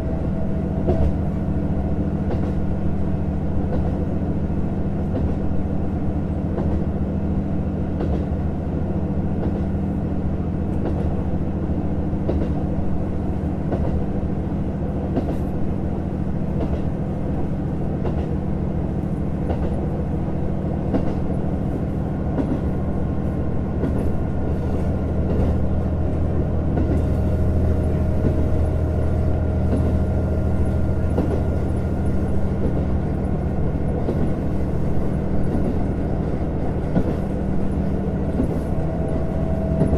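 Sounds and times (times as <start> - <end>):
railcar engine drone: 0.0 - 39.9
wheel-on-rail noise: 23.8 - 39.9.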